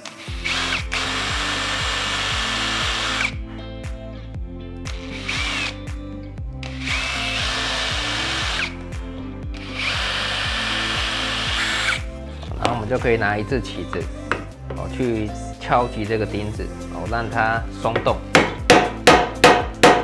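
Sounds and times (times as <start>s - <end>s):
power drill boring into wood: 0.0s - 3.4s, 4.9s - 5.8s, 6.6s - 8.8s, 9.6s - 12.1s.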